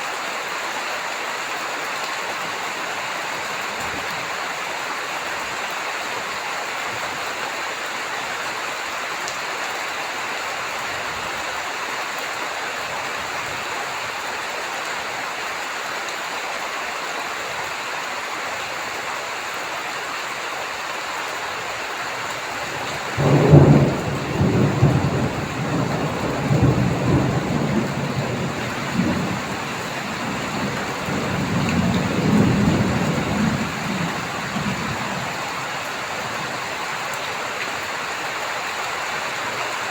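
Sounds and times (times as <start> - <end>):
heavy rain: 0.0 - 39.9
thunder crack and rumble: 23.1 - 35.6.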